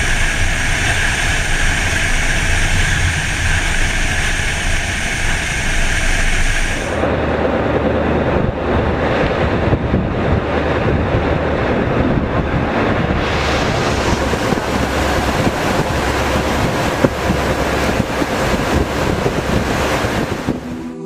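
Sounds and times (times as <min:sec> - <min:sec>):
rushing water: 0:00.0 - 0:20.9
boat engine humming: 0:00.0 - 0:21.0
wind buffeting microphone: 0:00.0 - 0:21.0.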